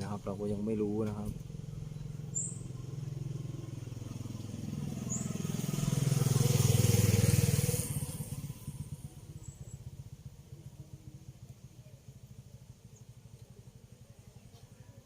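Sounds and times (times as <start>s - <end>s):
vehicle driving past: 0.0s - 10.1s
engine pulsing evenly: 0.0s - 14.0s.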